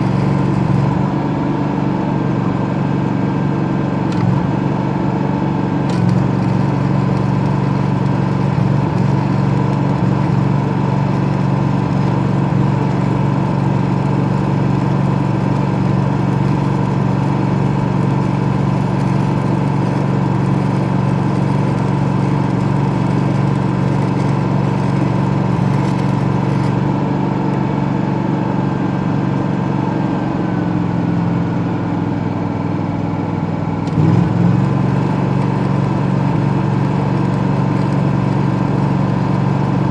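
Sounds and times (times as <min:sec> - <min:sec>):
welding arc crackling: 0:00.0 - 0:01.1, 0:05.8 - 0:27.7, 0:34.0 - 0:39.9
welding machine engine humming: 0:00.0 - 0:01.5, 0:02.1 - 0:28.4, 0:33.8 - 0:39.9.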